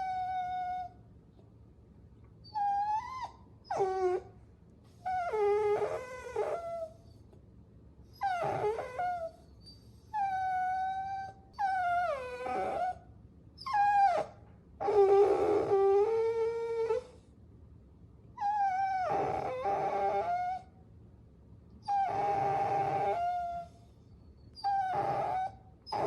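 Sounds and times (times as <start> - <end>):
puppy whining: 0.0 - 1.0, 2.4 - 7.4, 8.1 - 17.3, 18.4 - 20.8, 21.8 - 26.0.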